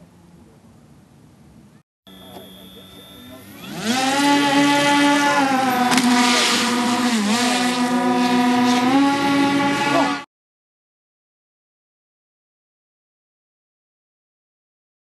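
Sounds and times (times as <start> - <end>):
electric motors spinning propellers: 2.1 - 10.2.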